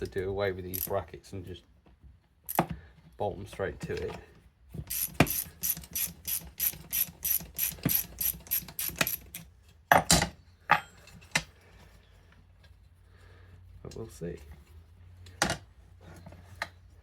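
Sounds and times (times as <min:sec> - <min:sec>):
ratchet spanner clicking: 0:00.7 - 0:00.9, 0:04.9 - 0:09.5.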